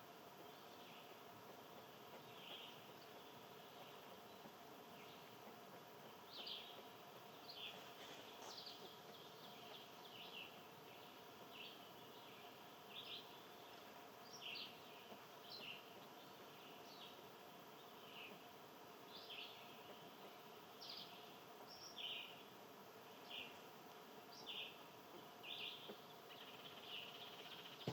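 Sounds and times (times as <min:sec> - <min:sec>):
faint steady hum: 0:00.0 - 0:27.9
faint bird chirps: 0:24.3 - 0:27.9.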